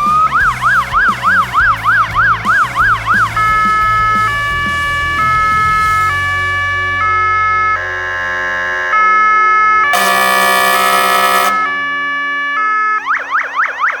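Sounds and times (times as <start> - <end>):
fire engine siren: 0.0 - 14.0
air horn blast: 4.2 - 12.9.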